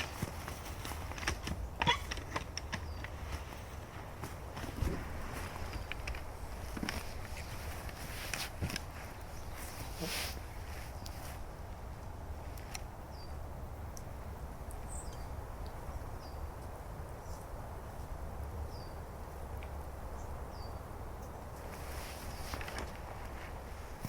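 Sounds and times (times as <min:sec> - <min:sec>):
small bird calling: 0:00.0 - 0:04.0.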